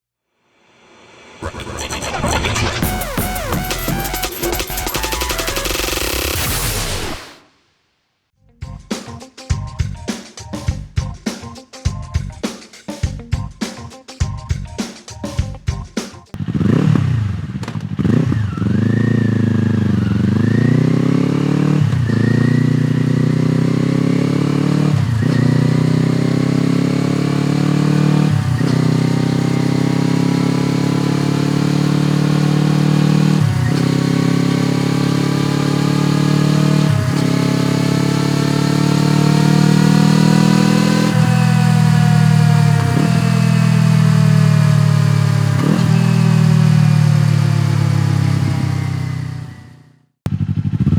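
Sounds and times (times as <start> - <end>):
motorcycle engine running: 16.4 - 50.9.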